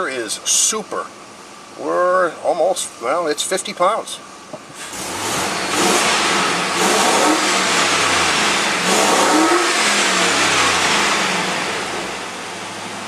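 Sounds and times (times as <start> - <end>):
truck engine revving: 4.8 - 13.0.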